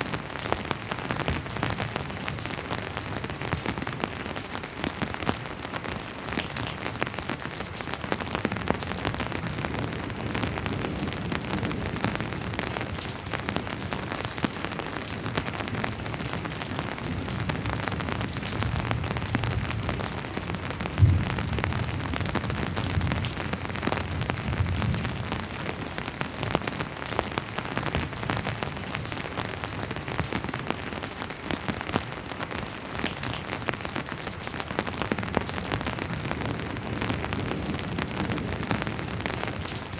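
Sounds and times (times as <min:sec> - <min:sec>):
rain falling: 0:00.0 - 0:39.9
distant thunder rumble: 0:18.6 - 0:25.2.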